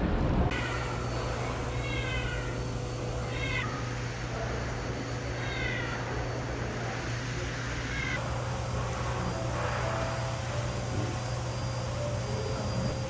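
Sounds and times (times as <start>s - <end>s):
steady low hum: 0.0s - 13.0s
cat meowing: 1.4s - 4.0s, 5.3s - 6.4s, 7.8s - 8.2s.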